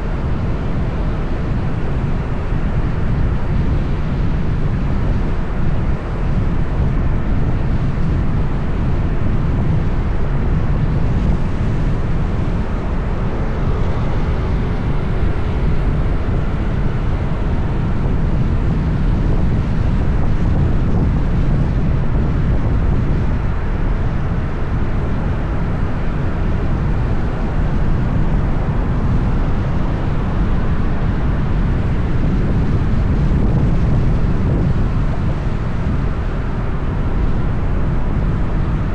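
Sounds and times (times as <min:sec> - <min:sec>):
road traffic noise: 0:00.0 - 0:38.9
wind rumble on microphone: 0:00.0 - 0:38.9.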